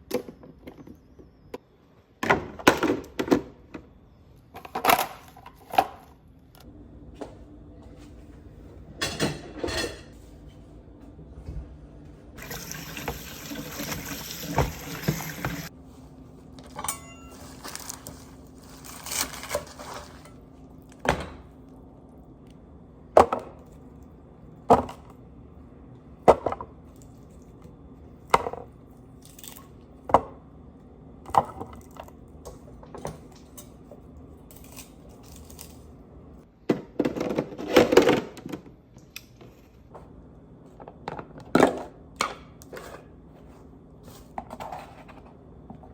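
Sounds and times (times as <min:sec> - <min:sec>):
running tap water: 0:12.4 - 0:15.7.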